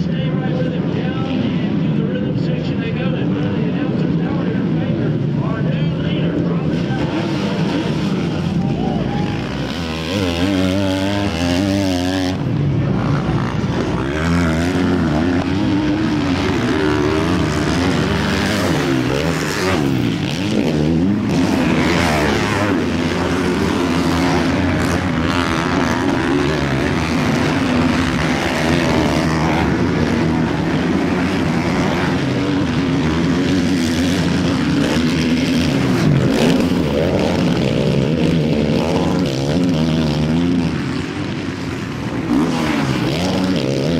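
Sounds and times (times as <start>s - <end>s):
motocross bikes revving: 0.0s - 43.9s.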